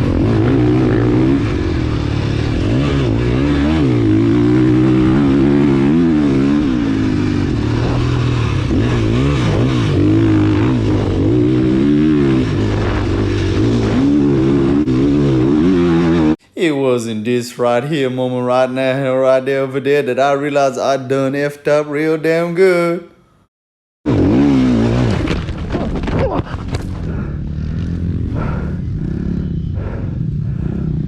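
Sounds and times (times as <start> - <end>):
dirt bike engine revving: 0.0 - 16.4, 24.1 - 31.0.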